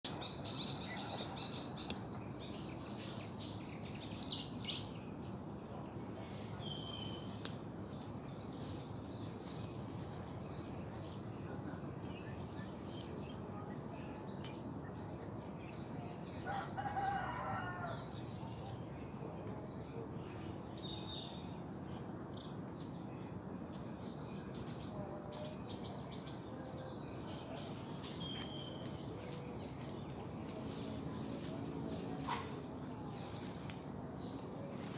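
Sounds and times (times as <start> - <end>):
insect drone: 0.1 - 34.9
rooster crowing: 16.4 - 18.1.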